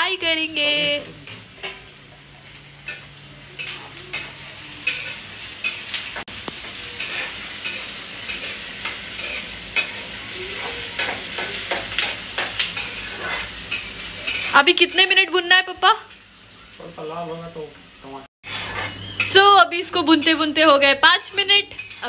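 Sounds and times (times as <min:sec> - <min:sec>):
onions sizzling in oil: 0:00.0 - 0:22.0
metal spatula scraping pan: 0:06.8 - 0:15.1, 0:18.4 - 0:20.6, 0:21.2 - 0:22.0.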